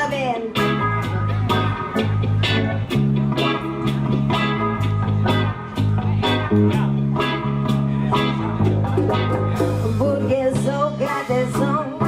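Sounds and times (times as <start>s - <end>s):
guitar: 0.0s - 12.0s
sustained bass line: 0.0s - 12.0s
drum hits: 8.6s - 10.2s.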